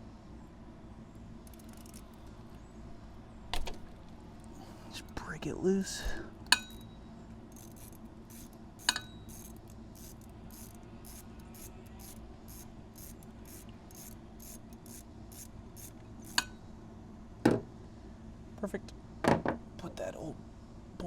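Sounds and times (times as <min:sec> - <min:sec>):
steady low hum: 0:00.0 - 0:21.0
socket wrench ratchet clicking: 0:01.4 - 0:02.6, 0:06.4 - 0:16.6.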